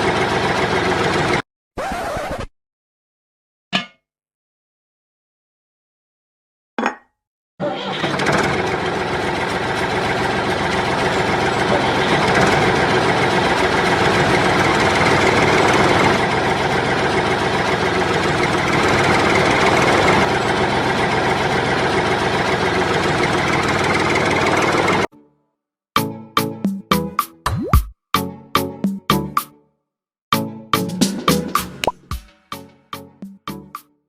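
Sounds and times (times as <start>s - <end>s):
small engine knocking: 7.9s - 25.1s.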